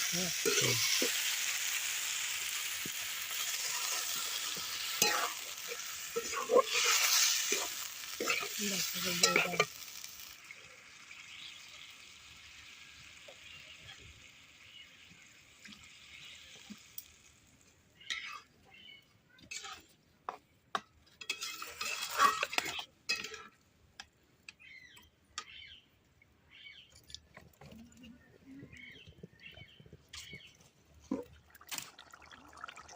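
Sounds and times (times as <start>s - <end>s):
curry sizzling in a pan: 0.0s - 20.4s, 21.2s - 23.5s
spoon scraping a pan: 0.4s - 1.3s, 2.9s - 10.0s, 18.0s - 18.5s, 19.4s - 20.4s, 21.1s - 23.6s.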